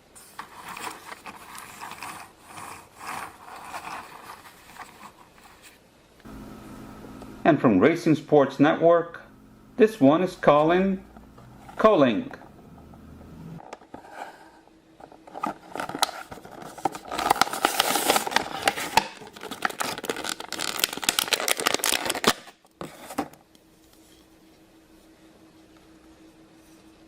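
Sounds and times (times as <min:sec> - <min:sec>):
faint steady hum: 0:00.0 - 0:27.0
toy car in plastic packaging: 0:00.3 - 0:05.6, 0:15.2 - 0:22.6.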